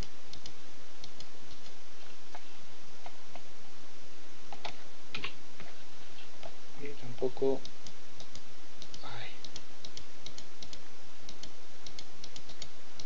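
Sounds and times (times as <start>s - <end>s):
steady hiss: 0.0s - 13.0s
mouse and keyboard clicks: 8.2s - 12.7s.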